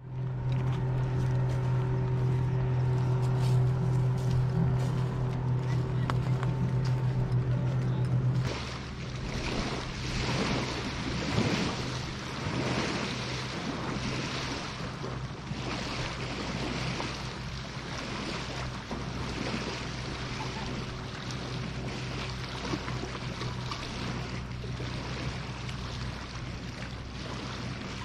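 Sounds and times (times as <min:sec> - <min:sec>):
wind gusting over microphone: 0:00.0 - 0:17.3
boat motor humming: 0:00.0 - 0:28.0.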